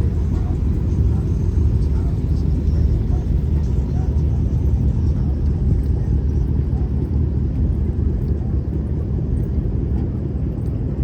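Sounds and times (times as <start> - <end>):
car engines idling: 0.0 - 6.0.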